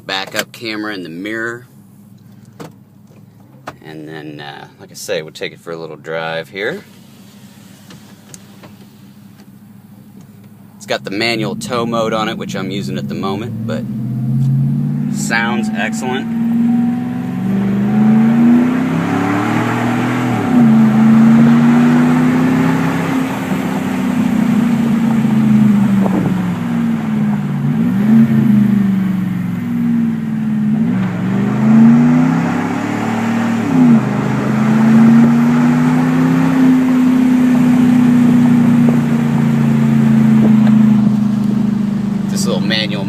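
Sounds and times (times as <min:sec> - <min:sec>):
truck engine accelerating through gears: 0:10.2 - 0:43.0.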